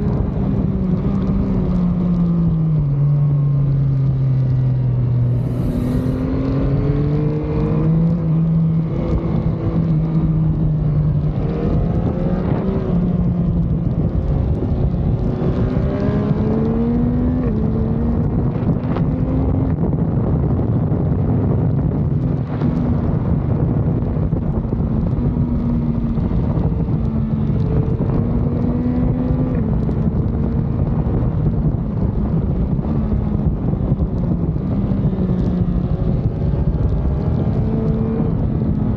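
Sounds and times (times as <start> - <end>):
wind rushing: 5.2 - 6.7
motorcycle engine revving: 5.2 - 9.9.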